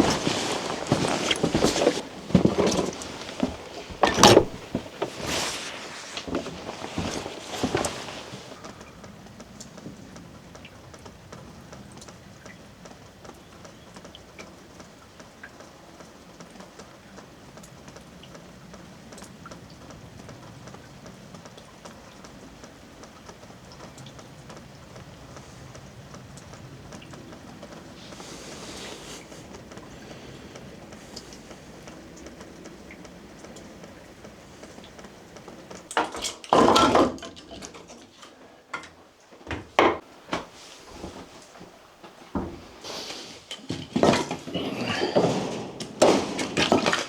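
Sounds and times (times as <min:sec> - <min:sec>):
household objects clattering: 0:00.0 - 0:08.6, 0:35.7 - 0:47.0
short knocks: 0:00.0 - 0:08.6
raindrops ticking on a surface: 0:00.0 - 0:44.0
rain falling: 0:00.0 - 0:47.0.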